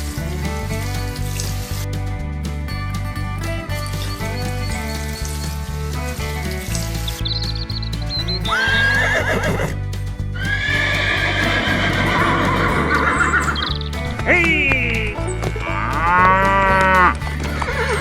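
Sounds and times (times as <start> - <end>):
background music with steady beat: 0.0 - 18.0
horse whinnying: 8.2 - 9.8, 10.4 - 18.0.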